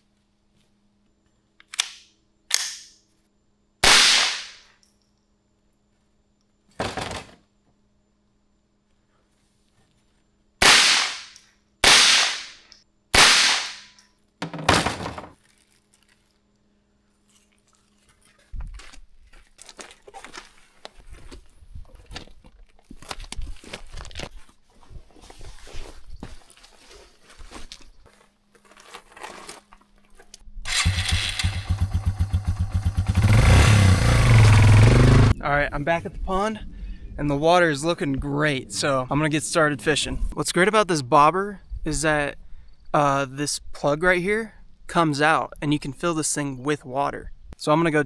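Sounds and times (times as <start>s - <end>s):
handgun gunshots: 1.8s - 2.8s, 3.8s - 4.6s, 10.6s - 12.6s, 13.2s - 14.0s
rustling and crunching: 14.4s - 30.4s.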